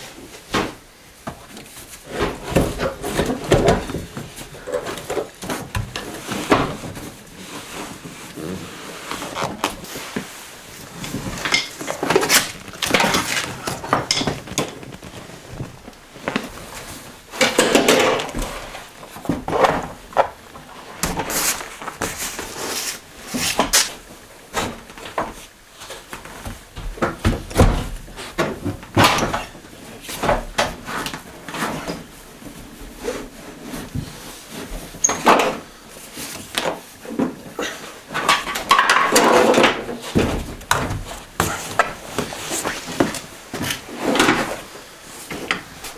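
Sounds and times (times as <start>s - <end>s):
hand tools knocking and scraping: 9.2s - 15.8s, 36.3s - 44.7s.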